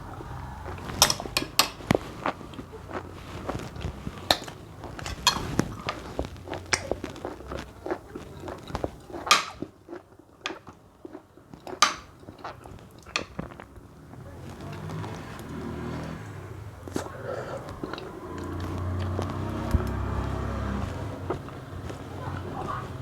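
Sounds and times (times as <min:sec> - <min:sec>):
chewing and mouth smacks: 0:00.0 - 0:16.2, 0:16.8 - 0:23.0.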